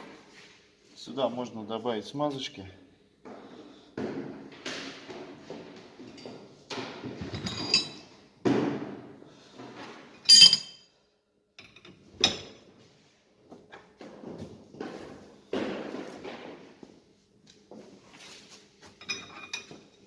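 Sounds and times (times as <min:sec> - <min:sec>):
metal tools knocking: 0:10.3 - 0:10.8
metallic clinks: 0:10.3 - 0:10.8.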